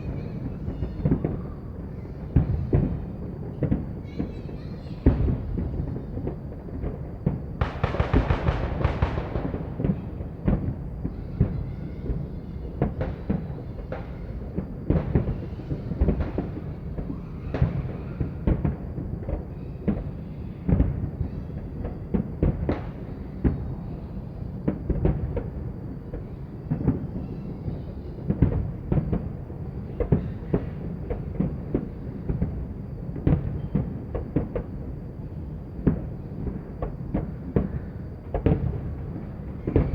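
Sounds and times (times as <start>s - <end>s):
fireworks crackling: 0.0s - 24.0s
fireworks bangs and booms: 0.0s - 39.9s.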